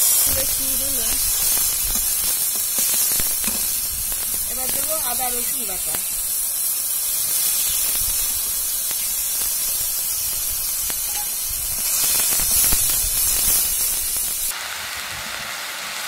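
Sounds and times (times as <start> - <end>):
pastes sizzling in hot oil: 0.0 - 16.0
metal spatula scraping: 11.0 - 11.4.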